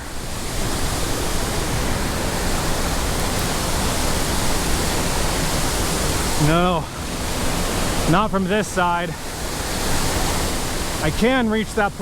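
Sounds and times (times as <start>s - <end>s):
waterfall rushing water roar: 0.0s - 12.0s.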